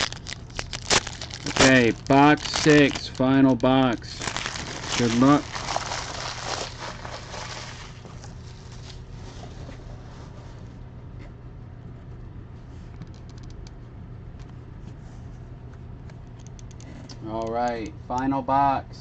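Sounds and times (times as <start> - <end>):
cards rustling and clicking: 0.0 - 9.0
plastic wrapping crinkling: 0.0 - 9.1.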